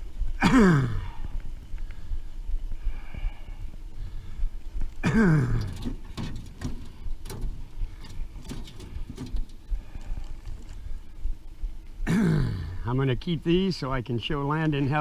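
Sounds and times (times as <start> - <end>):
clicks and knocks of fishing gear: 5.6 - 10.9.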